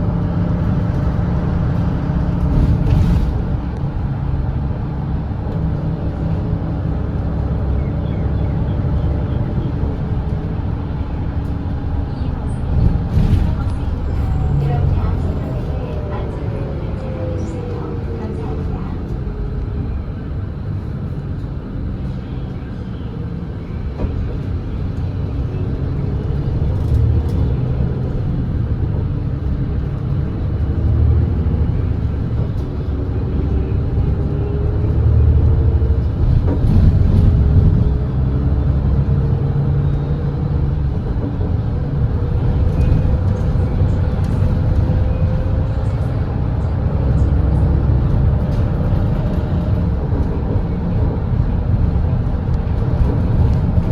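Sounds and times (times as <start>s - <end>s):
bus diesel engine accelerating: 0.0s - 53.9s.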